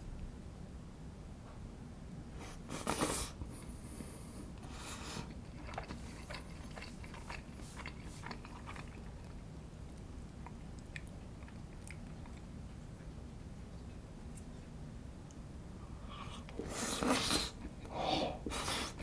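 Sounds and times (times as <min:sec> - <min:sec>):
chewing sounds: 0:04.6 - 0:14.0.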